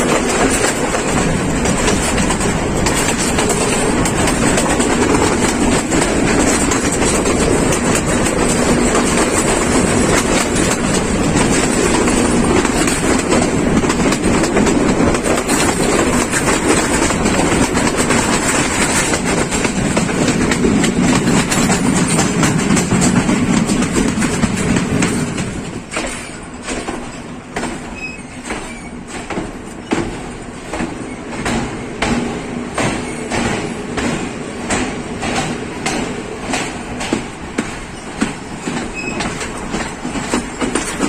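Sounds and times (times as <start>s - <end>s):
passenger train rumbling: 0.0s - 41.0s
wheels clattering over rails: 0.0s - 41.0s.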